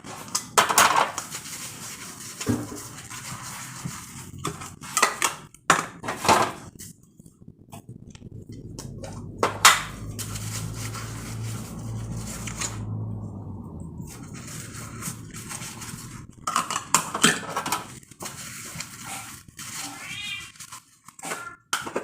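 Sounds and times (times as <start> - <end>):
steady low hum: 2.6 - 19.7.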